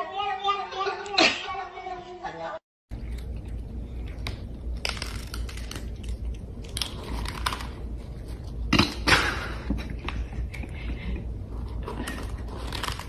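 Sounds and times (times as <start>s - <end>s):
cats crunching dry kibble: 2.9s - 8.7s, 10.5s - 13.0s.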